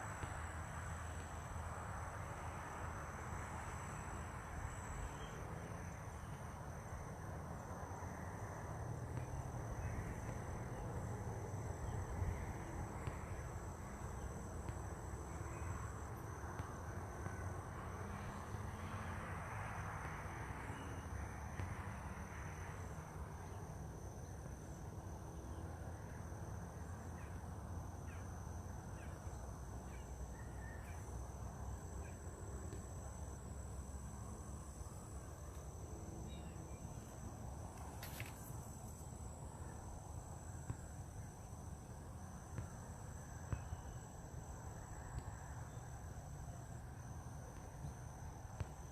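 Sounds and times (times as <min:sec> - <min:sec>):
constant low rumble: 0:00.0 - 0:48.9
high-pitched insect trills: 0:28.0 - 0:47.0.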